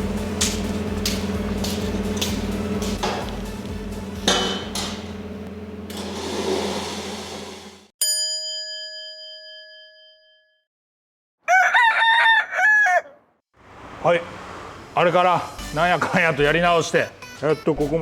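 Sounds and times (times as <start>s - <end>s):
workshop machine hum: 0.0s - 7.9s
bell ding: 8.0s - 10.7s.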